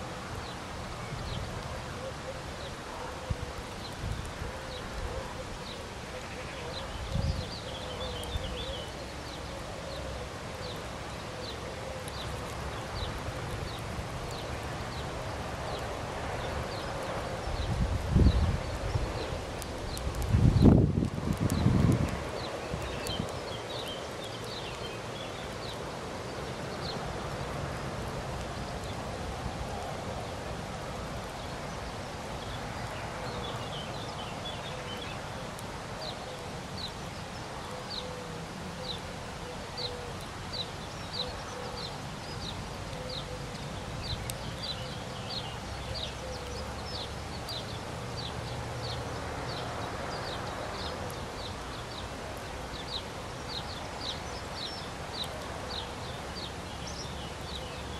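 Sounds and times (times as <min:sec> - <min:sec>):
wind noise: 0:06.9 - 0:08.6, 0:16.0 - 0:23.8.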